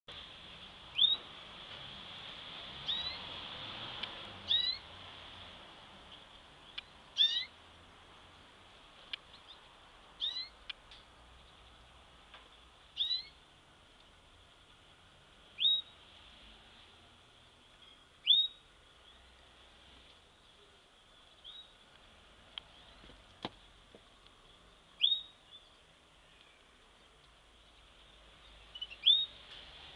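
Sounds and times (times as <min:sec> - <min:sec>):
faint steady high hiss: 0:00.1 - 0:29.9
bird whistled call notes: 0:18.2 - 0:18.6, 0:25.0 - 0:25.6, 0:28.7 - 0:29.4.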